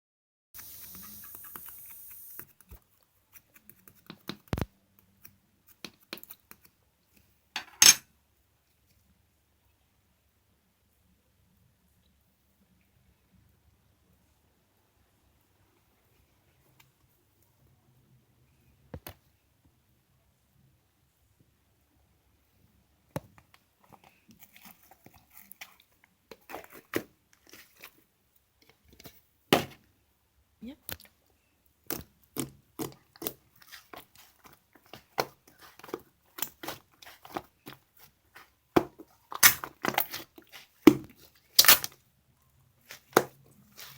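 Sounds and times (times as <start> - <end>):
faint steady hiss: 0.6 - 43.9
slime crackling squish: 31.9 - 42.0, 42.8 - 43.9.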